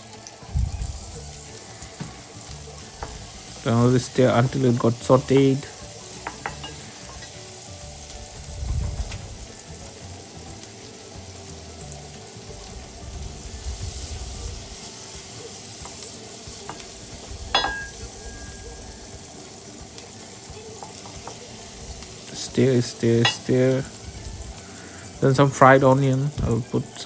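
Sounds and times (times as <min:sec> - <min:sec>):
onions sizzling in hot oil: 0:00.0 - 0:27.0
spoon scraping a pan: 0:01.3 - 0:10.8, 0:11.8 - 0:25.6
utensil clinking on pan: 0:05.2 - 0:07.4, 0:17.5 - 0:19.2.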